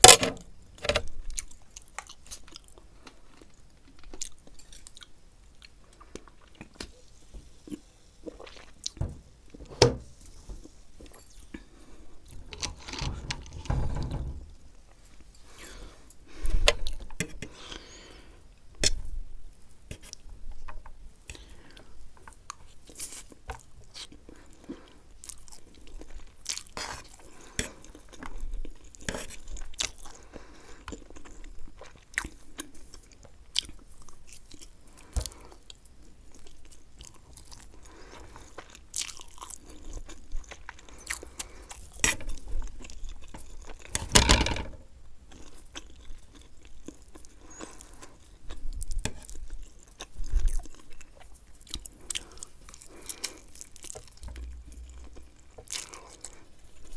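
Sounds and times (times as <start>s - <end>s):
wet sticky chewing: 45.3s - 56.9s.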